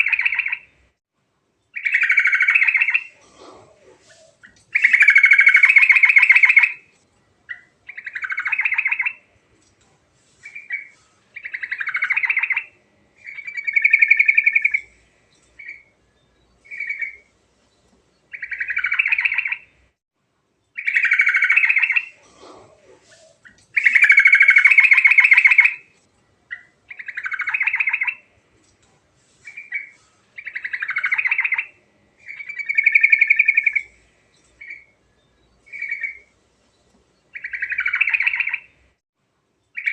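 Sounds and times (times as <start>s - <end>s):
bird singing trilled phrases: 0.0s - 0.8s, 1.7s - 3.2s, 4.1s - 6.8s, 7.5s - 9.2s, 10.4s - 19.8s, 20.7s - 22.2s, 23.2s - 25.8s, 26.5s - 28.3s, 29.5s - 38.8s, 39.7s - 39.9s.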